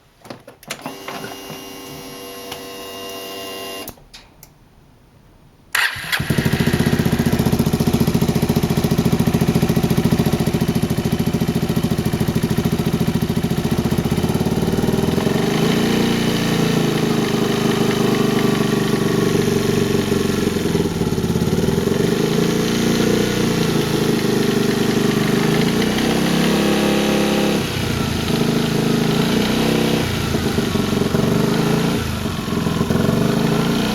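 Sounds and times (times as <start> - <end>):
scooter engine running: 6.0 - 33.9.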